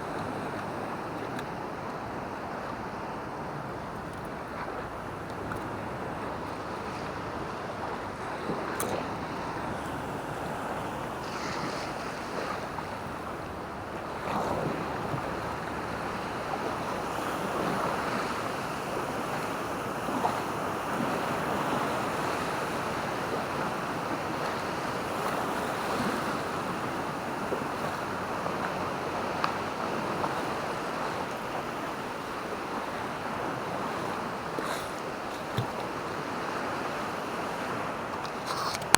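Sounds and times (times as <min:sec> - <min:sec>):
sea waves washing onto beach: 0:00.0 - 0:38.9.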